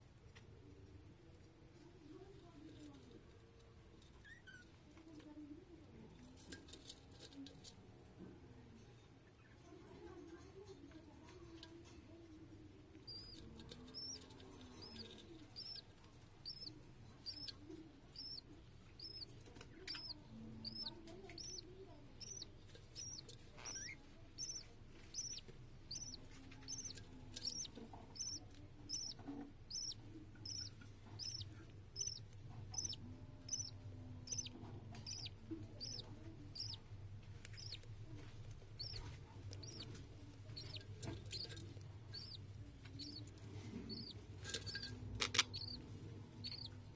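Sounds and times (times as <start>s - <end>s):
bird chick begging chirps: 13.0s - 37.8s, 38.8s - 46.9s.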